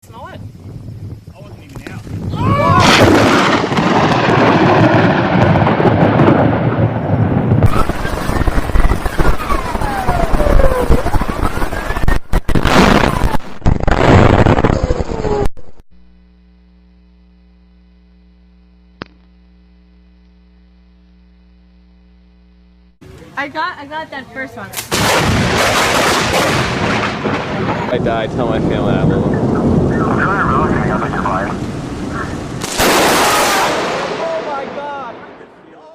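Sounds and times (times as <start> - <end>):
thunder cracks and rumbling: 1.8 - 15.5, 24.9 - 35.7
click: 19.0 - 19.3.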